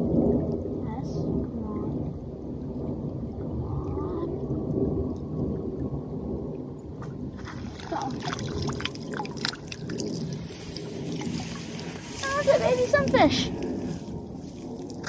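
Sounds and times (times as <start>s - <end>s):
low steady rumble: 0.0s - 15.0s
water splashing and dripping: 4.6s - 15.0s.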